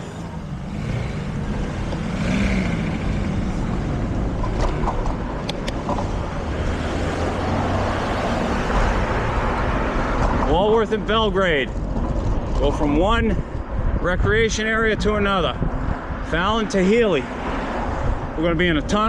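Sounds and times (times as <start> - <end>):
bicycle road noise: 0.0 - 19.0.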